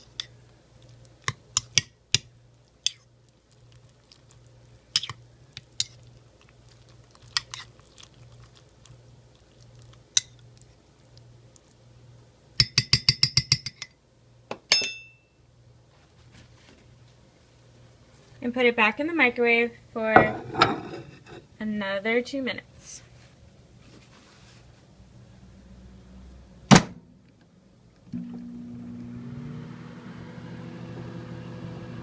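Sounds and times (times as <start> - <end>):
spoon scraping ceramic mug: 20.2 - 21.4.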